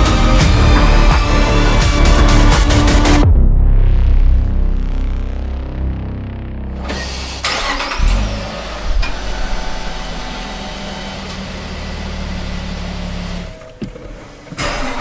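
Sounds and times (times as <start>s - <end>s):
car engine starting and idling: 0.0s - 3.3s, 6.5s - 15.0s.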